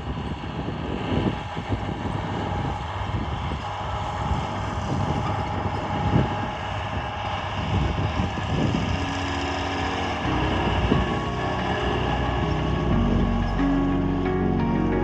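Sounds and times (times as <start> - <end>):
tractor diesel engine running: 0.0 - 15.0
held music notes: 8.0 - 15.0.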